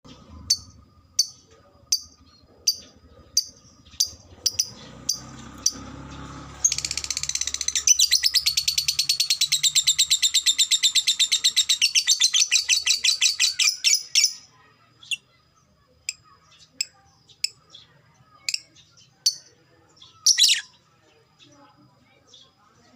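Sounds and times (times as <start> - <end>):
lovebird rapid chattering trill: 0.1 - 5.9, 6.6 - 20.8
lovebird sharp chirps: 6.6 - 15.4, 16.0 - 20.8.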